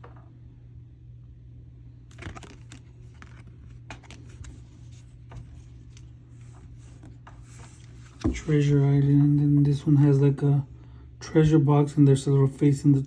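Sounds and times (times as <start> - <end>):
cards being handled: 2.1 - 8.7.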